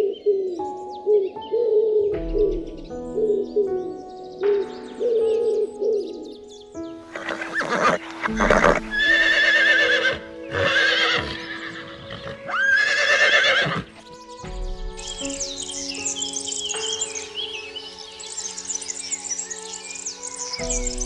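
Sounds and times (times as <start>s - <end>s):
soft background music: 0.0s - 21.0s
horse snorting: 7.1s - 9.5s
horse whinnying: 7.1s - 13.9s.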